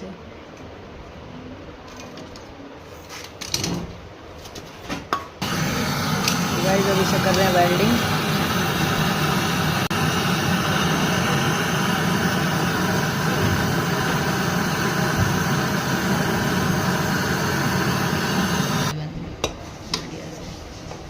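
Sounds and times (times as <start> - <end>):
torch flame hissing: 5.4 - 19.0.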